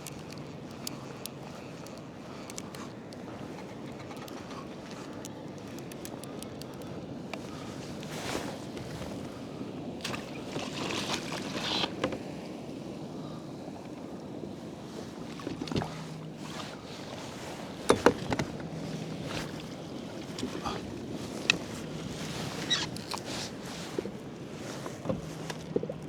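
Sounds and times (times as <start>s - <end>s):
water sloshing around a kayak: 0.0s - 26.0s
handling noises: 15.3s - 26.0s.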